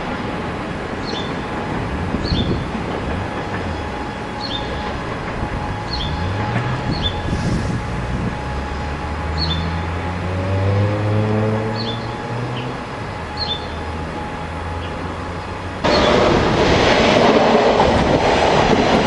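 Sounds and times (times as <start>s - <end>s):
electric train rumbling on track: 0.0s - 19.0s.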